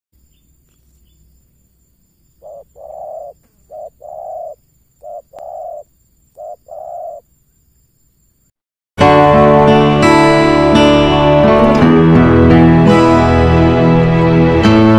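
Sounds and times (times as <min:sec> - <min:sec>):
dove cooing: 0:02.4 - 0:07.3.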